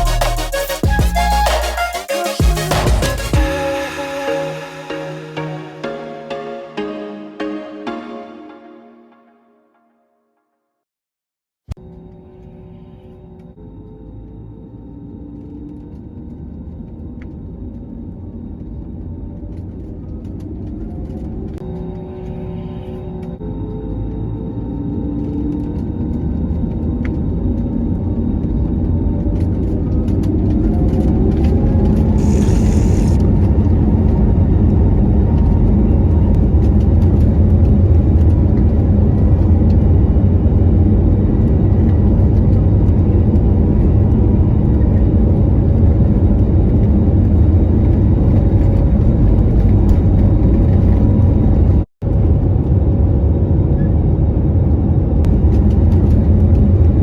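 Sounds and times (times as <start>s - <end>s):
jet engines rumbling and whining: 12.0s - 57.0s
short hiss: 32.2s - 33.2s.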